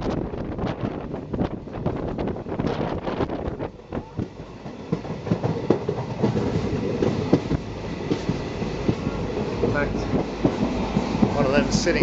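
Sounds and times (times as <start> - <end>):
train running noise: 0.0 - 12.0
train wheels clattering over rail joints: 2.6 - 12.0.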